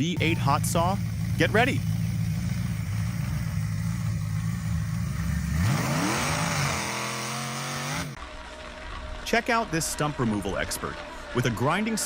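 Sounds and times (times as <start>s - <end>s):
hot saw engine idling and revving: 0.0s - 8.7s.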